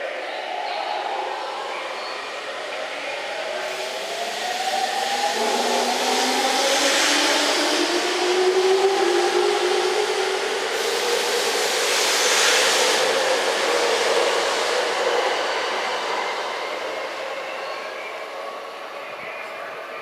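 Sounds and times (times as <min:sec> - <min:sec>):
train running noise: 0:01.0 - 0:20.0.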